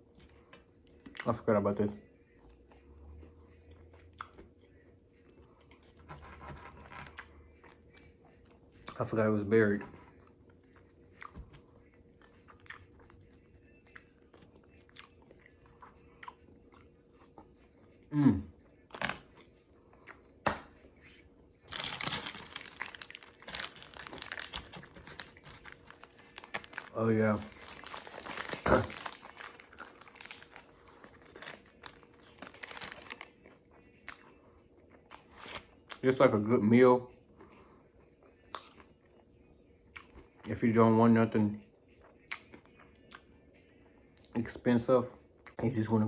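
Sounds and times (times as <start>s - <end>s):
person chewing food: 2.2s - 9.0s, 9.9s - 18.0s, 18.6s - 36.0s, 37.3s - 39.2s, 41.9s - 44.4s
paper packaging crinkling: 21.7s - 33.3s, 35.1s - 35.7s.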